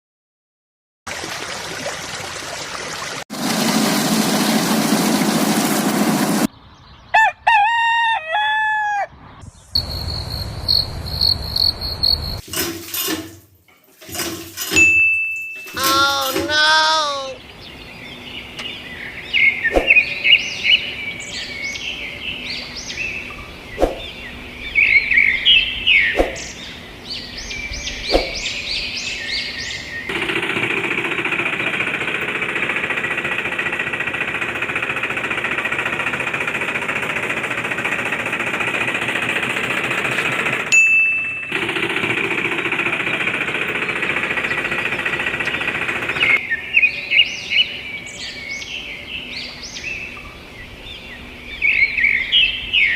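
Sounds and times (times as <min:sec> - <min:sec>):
birds chirping: 0:06.5 - 0:07.5, 0:15.3 - 0:30.3, 0:42.3 - 0:52.9
small machine rattling: 0:12.4 - 0:15.0, 0:30.1 - 0:40.7, 0:41.5 - 0:46.4.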